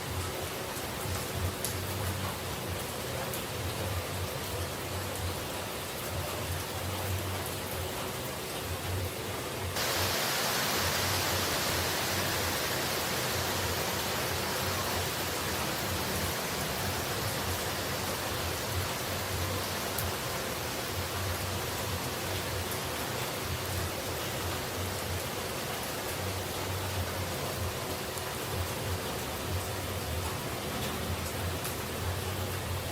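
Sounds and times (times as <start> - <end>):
falling water rushing: 0.0 - 32.9.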